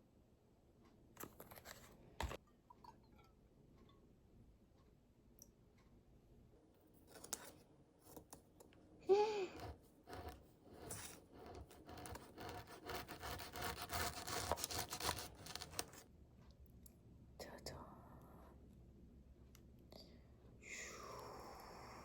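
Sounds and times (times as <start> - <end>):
faint scraping and rubbing: 9.4 - 16.0.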